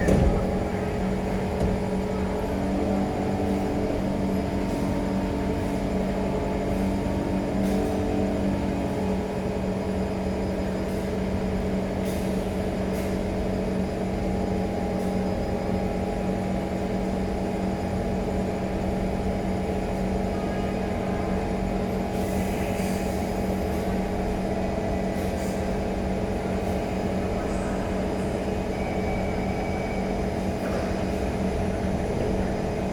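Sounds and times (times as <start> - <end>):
train motor hum: 0.0 - 4.6
train rolling noise: 0.0 - 20.3, 21.2 - 32.9.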